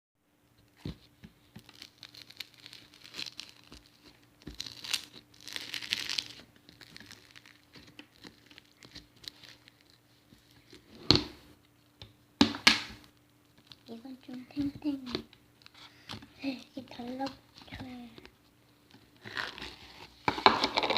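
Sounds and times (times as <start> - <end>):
slime squishing and popping: 1.5 - 9.9.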